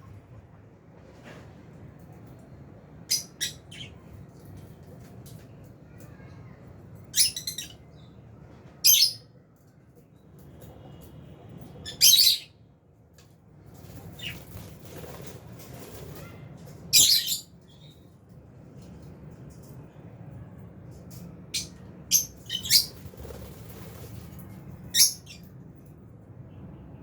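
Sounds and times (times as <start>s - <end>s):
low background hum: 0.0s - 27.0s
lovebirds shrill harsh chirps: 16.9s - 18.0s, 21.6s - 23.2s, 24.9s - 25.5s.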